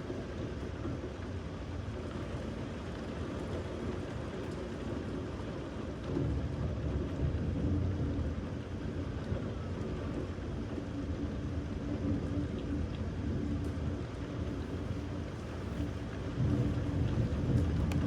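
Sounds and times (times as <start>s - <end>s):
rain falling: 0.0s - 18.0s
thunder rumble: 13.2s - 18.0s.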